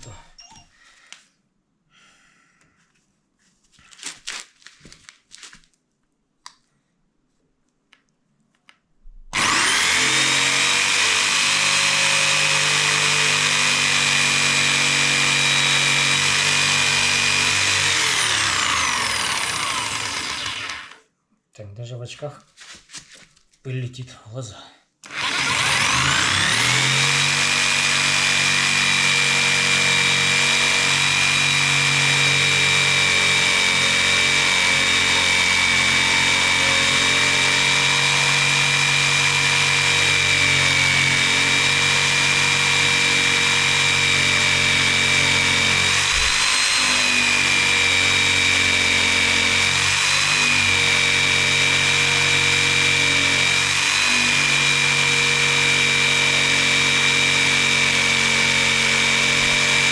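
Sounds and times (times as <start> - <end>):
electric jigsaw cutting wood: 9.3 - 21.0, 25.0 - 59.9.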